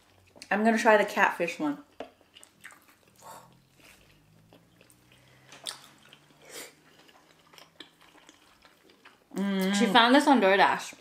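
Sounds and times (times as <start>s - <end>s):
soft chewing: 0.0s - 0.5s, 1.8s - 9.4s.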